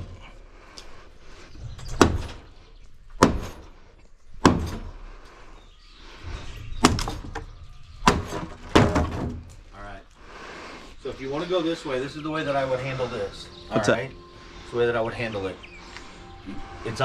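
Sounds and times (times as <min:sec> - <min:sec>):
heavy blows on wooden lumber: 0:03.1 - 0:03.7, 0:04.4 - 0:05.0, 0:06.8 - 0:09.7.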